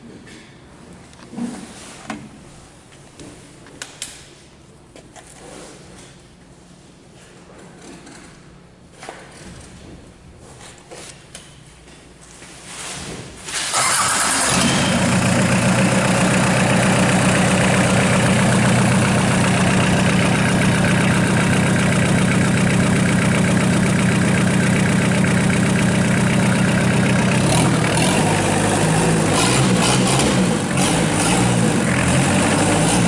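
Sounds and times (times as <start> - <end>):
diesel engine cranking and running: 13.7 - 33.0.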